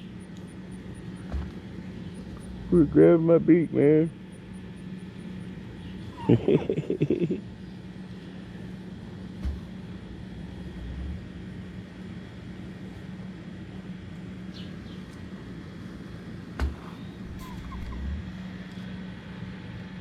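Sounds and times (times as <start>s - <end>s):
low mechanical hum: 0.0s - 20.0s
faint bird chirps: 16.9s - 18.2s.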